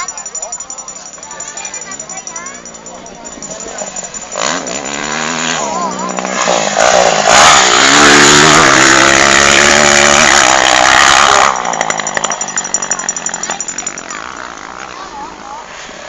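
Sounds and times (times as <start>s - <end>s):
dirt bike engine revving: 3.4s - 15.0s.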